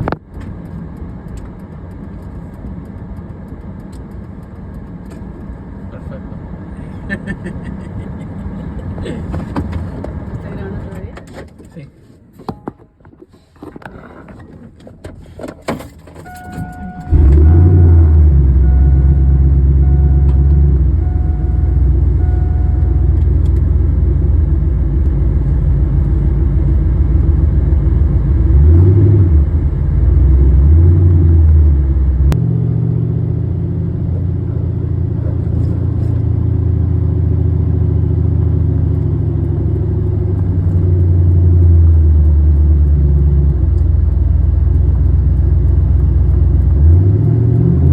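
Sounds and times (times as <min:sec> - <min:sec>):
car engine running and revving: 0:15.7 - 0:47.9
dashboard warning chime: 0:16.2 - 0:23.2.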